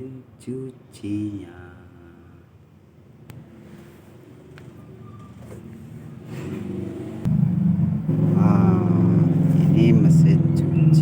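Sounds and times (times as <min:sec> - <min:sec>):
engine humming: 0:06.2 - 0:11.0.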